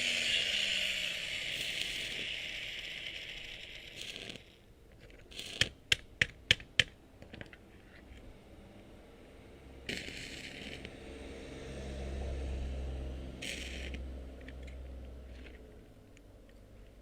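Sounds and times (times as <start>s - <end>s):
power tool motor winding down: 0.0s - 4.6s, 13.3s - 14.8s.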